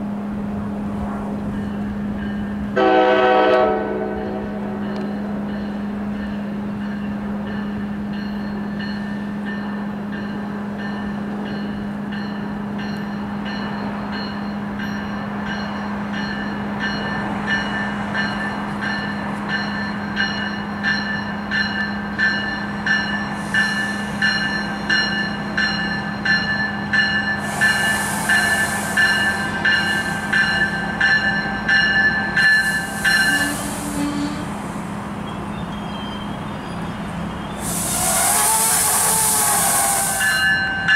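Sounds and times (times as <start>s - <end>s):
rail ringing: 1.4s - 40.9s
bursts of hiss: 37.6s - 40.3s.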